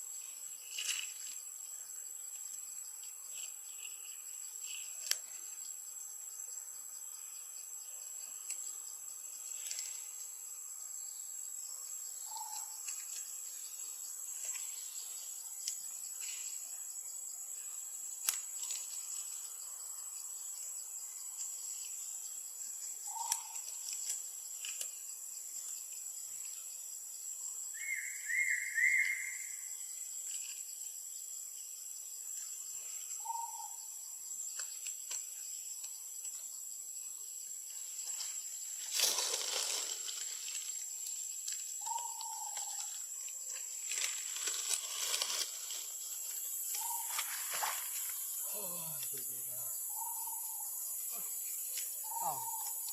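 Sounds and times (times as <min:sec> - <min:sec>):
insect drone: 0:00.0 - 0:52.9
short chirping calls: 0:27.8 - 0:29.6.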